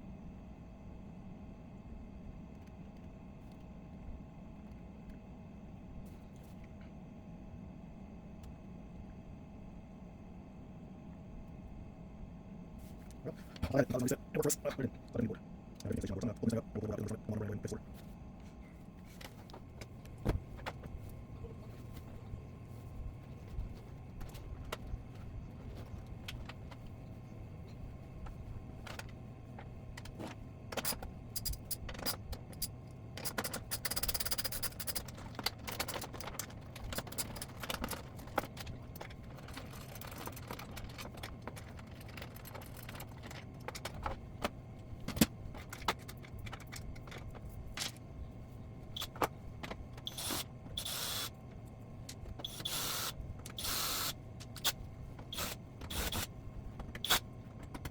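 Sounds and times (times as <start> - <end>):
steady low hum: 0.0 - 57.9
tools clicking and tapping: 30.0 - 44.2.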